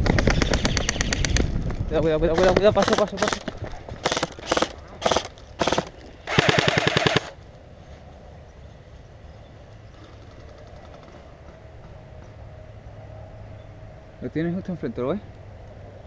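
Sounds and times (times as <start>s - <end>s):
airsoft rifle firing bursts: 2.4s - 7.4s.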